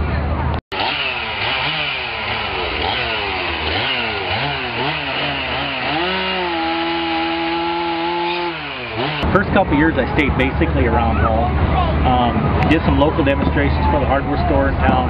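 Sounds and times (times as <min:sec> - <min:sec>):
chainsaw engine revving: 0:00.7 - 0:09.7.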